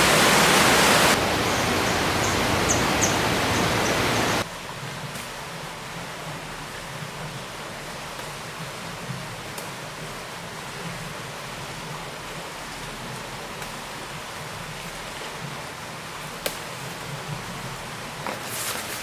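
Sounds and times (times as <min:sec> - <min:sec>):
river water rushing: 0:00.0 - 0:04.8.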